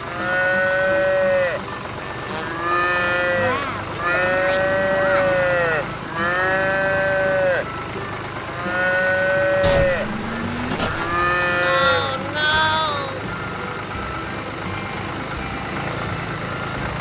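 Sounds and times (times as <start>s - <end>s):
cartoon cow mooing: 0.1s - 1.6s, 2.3s - 7.7s, 8.6s - 13.3s
high twittering: 0.9s - 16.8s
short thump: 9.6s - 11.3s.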